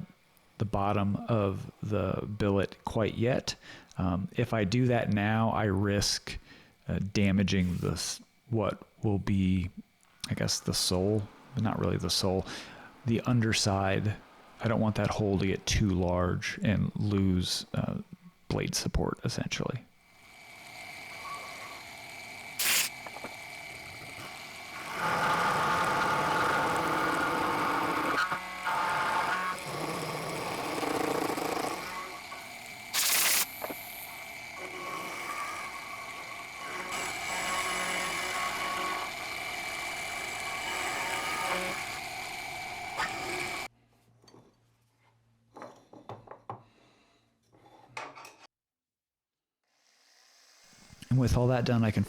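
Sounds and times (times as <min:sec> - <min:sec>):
end mill cutting wood: 0:20.2 - 0:43.7
milling machine whining: 0:20.2 - 0:43.7.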